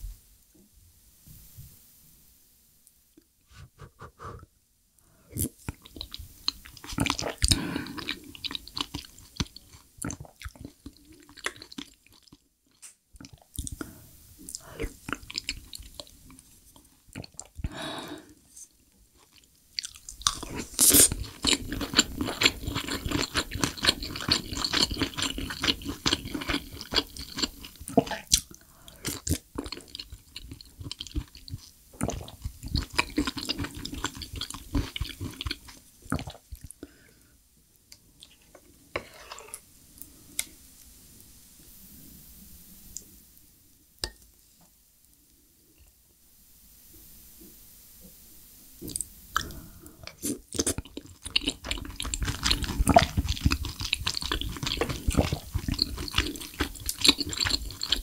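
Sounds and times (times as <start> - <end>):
close chewing with mouth clicks: 5.4 - 17.7, 19.2 - 36.9, 48.8 - 58.0.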